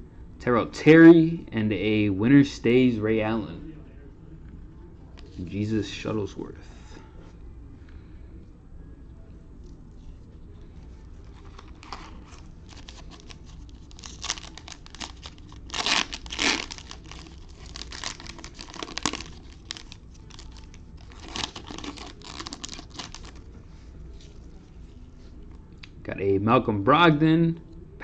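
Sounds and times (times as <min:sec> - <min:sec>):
card pack wrapper tearing: 0:11.3 - 0:23.4.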